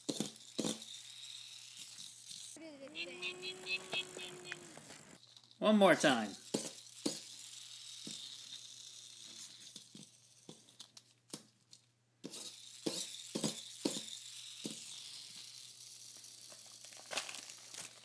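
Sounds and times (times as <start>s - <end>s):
toy motorbike whirring: 0.0s - 11.5s, 12.2s - 18.0s.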